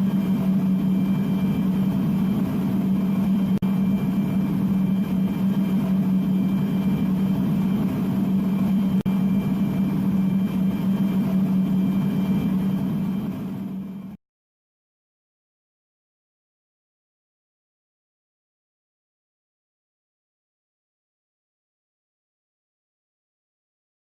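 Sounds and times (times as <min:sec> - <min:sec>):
loud machine drone: 0:00.0 - 0:14.2.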